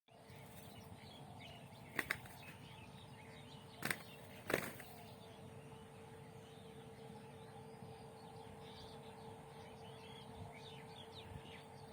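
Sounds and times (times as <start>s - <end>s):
birds chirping faintly: 0.1s - 11.9s.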